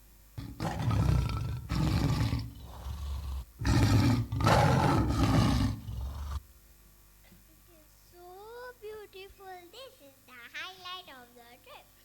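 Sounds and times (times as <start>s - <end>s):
tiger roaring: 0.4s - 6.4s.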